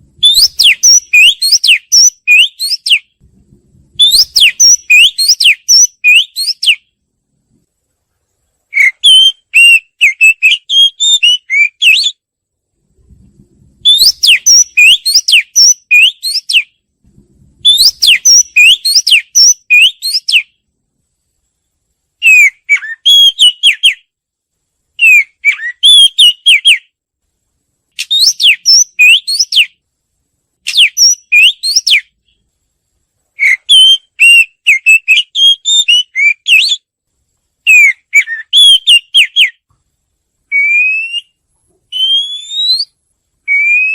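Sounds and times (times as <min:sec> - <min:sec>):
bird singing whistled phrases: 0:00.2 - 0:03.2, 0:04.0 - 0:06.9, 0:08.7 - 0:12.2, 0:13.8 - 0:16.8, 0:17.6 - 0:20.6, 0:22.2 - 0:24.1, 0:25.0 - 0:26.9, 0:28.0 - 0:29.8, 0:30.7 - 0:32.1, 0:33.4 - 0:36.9, 0:37.6 - 0:39.6, 0:40.5 - 0:43.9.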